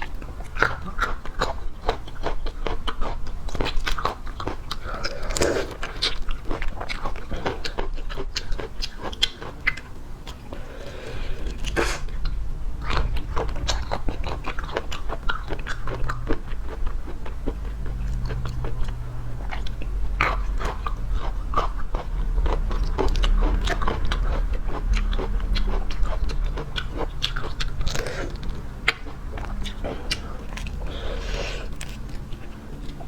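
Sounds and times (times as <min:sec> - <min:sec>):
wet chewing and crunching: 0:00.0 - 0:33.0.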